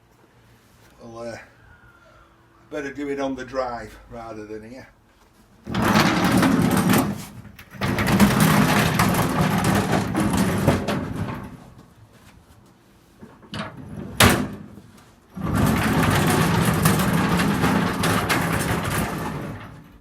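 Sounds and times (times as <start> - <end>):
metal rumbling and scraping on ground: 5.6 - 20.0.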